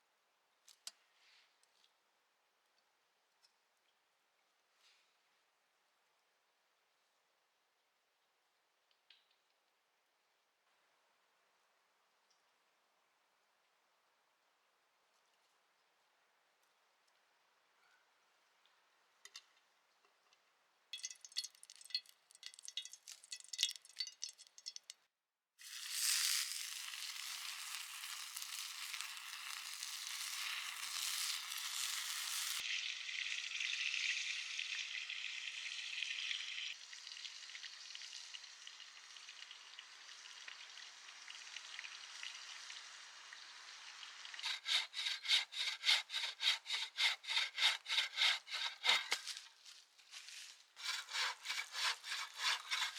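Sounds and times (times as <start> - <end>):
food sizzling in a pan: 25.6 - 45.0
hand saw cutting wood: 44.4 - 49.5, 50.8 - 52.9.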